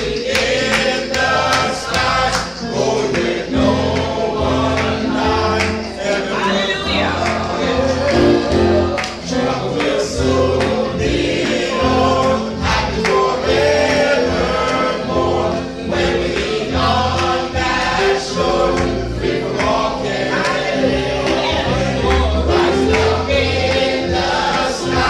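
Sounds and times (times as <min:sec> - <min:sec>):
choir singing a hymn: 0:00.0 - 0:25.0
steady bass line: 0:07.8 - 0:09.0.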